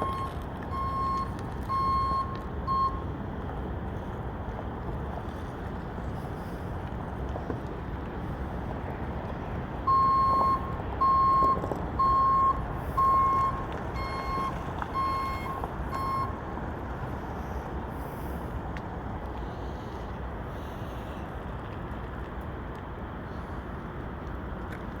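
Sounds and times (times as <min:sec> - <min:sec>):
vehicle backup alarm beeping: 0:00.0 - 0:03.2, 0:09.8 - 0:16.7.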